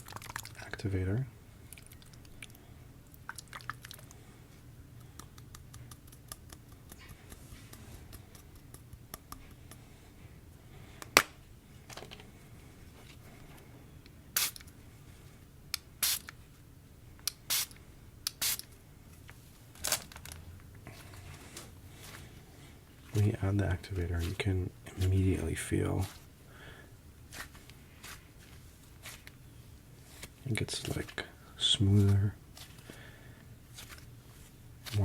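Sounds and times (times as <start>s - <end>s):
slime crackling: 27.2s - 35.0s.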